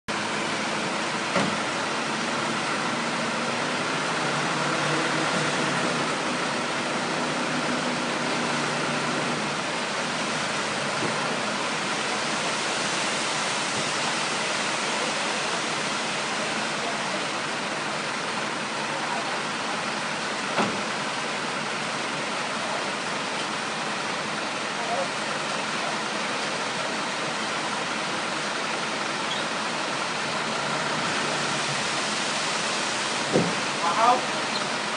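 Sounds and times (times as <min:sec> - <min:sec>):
faint truck engine hum: 0:00.1 - 0:34.9
steady rushing noise: 0:29.7 - 0:34.9.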